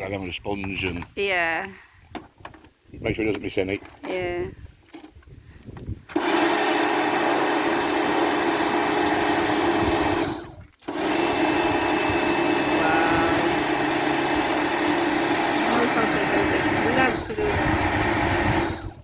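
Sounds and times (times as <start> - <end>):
pressure washer running: 6.1 - 19.0.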